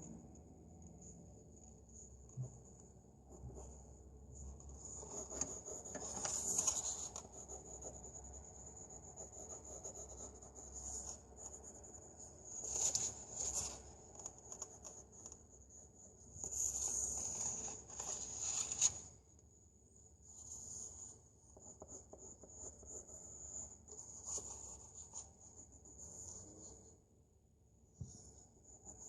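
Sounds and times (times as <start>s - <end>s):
pencil scratching on paper: 2.0s - 19.0s, 20.4s - 26.9s.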